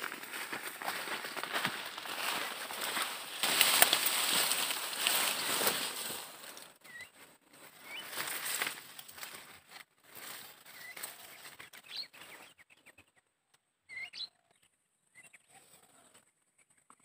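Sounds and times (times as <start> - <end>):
small bird chirping: 6.8 - 8.5, 10.6 - 17.0.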